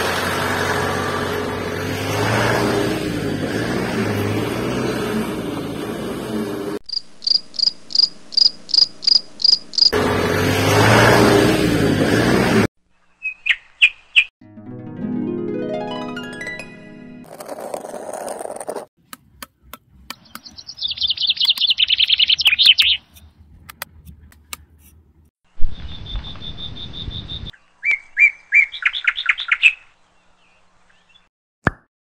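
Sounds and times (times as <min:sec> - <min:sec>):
high chirps: 0:20.2 - 0:23.2.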